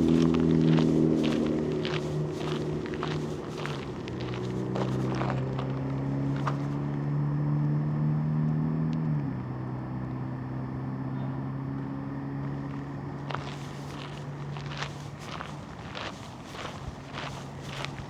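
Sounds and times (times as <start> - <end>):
footsteps: 0.0 - 6.7, 13.3 - 18.0
low motor hum: 0.0 - 18.0.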